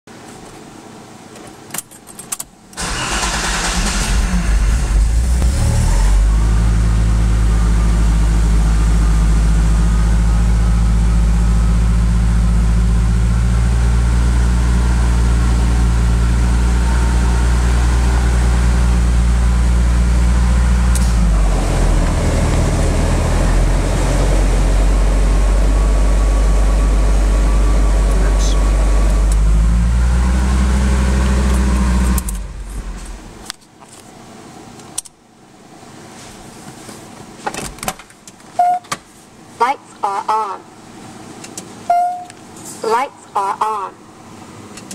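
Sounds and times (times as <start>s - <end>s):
car engine starting and idling: 2.7s - 33.6s.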